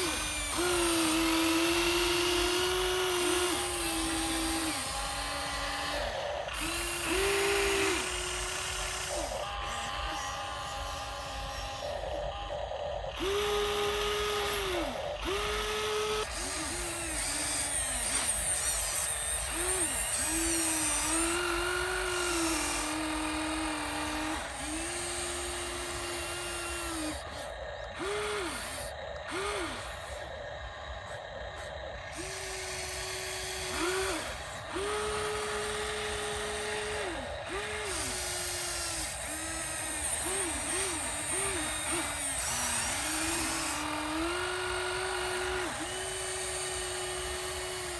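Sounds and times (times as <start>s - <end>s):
gear and motor hiss: 0.0s - 47.9s
toy electric motors whining: 0.0s - 47.9s.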